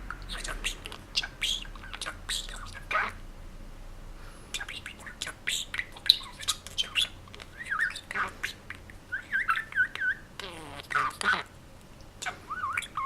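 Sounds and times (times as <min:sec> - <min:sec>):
budgerigar chirps and squawks: 0:00.3 - 0:03.2, 0:05.5 - 0:11.5, 0:12.2 - 0:13.0
budgerigar whistling: 0:05.5 - 0:11.5, 0:12.2 - 0:13.0.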